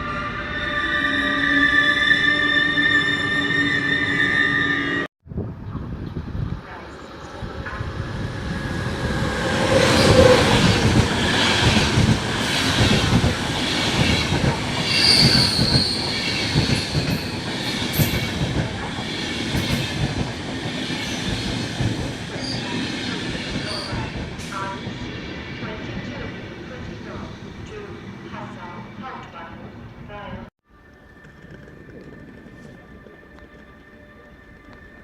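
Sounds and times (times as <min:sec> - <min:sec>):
high-pitched wheel squeals: 0:00.0 - 0:05.1.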